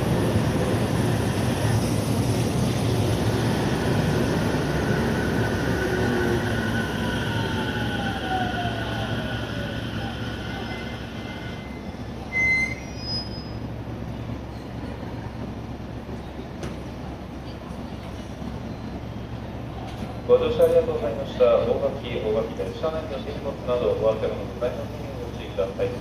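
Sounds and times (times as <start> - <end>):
brake squeal: 10.7 - 13.6.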